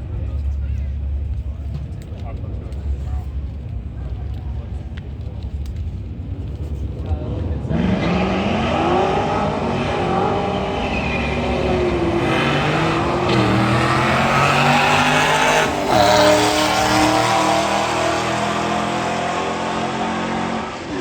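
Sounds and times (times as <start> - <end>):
car engine accelerating: 6.7 - 21.0.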